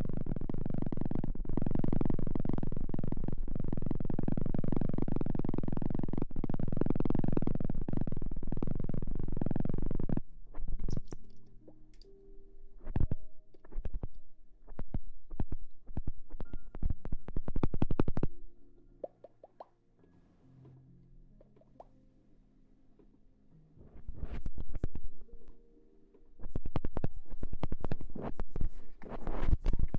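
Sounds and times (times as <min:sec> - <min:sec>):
sharp taps and clicks: 0:19.0 - 0:19.8.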